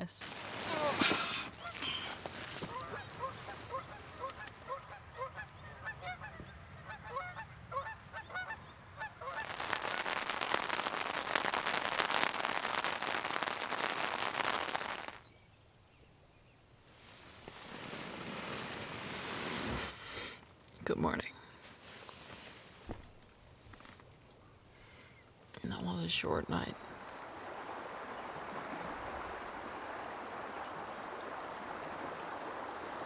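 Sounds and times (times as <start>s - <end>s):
geese honking: 0.7s - 10.1s
steady rushing hiss: 9.4s - 15.2s.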